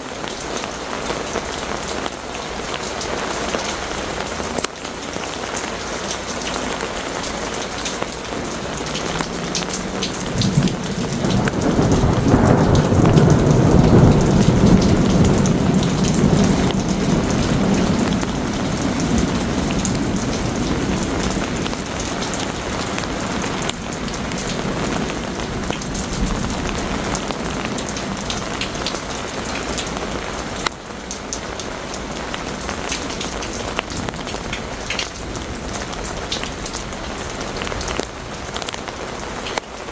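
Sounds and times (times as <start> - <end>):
heavy rain: 0.0 - 39.9
thunder rumbling: 7.0 - 39.2.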